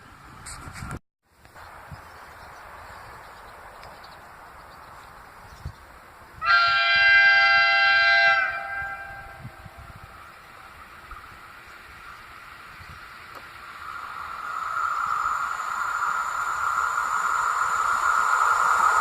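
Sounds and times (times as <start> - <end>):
train horn blast: 6.4 - 9.8
steady background noise: 9.4 - 19.0.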